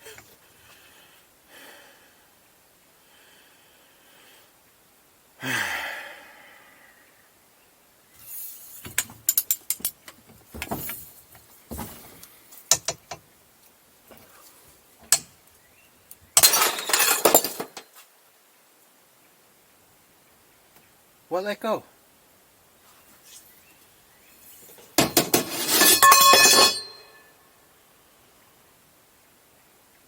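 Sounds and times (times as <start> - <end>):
metallic clinks and rattles of tools: 8.8 - 11.2, 16.4 - 17.9, 24.7 - 27.2.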